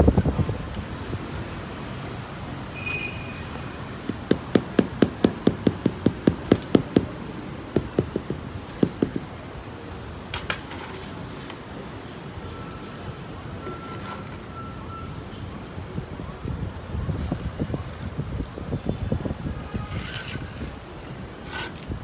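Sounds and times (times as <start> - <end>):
hammer tapping rapidly: 4.1 - 7.2, 7.8 - 9.3.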